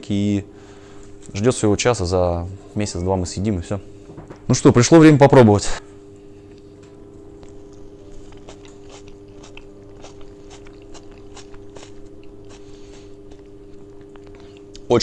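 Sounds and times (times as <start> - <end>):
steady low hum: 0.0 - 15.0
person chewing: 7.4 - 14.9.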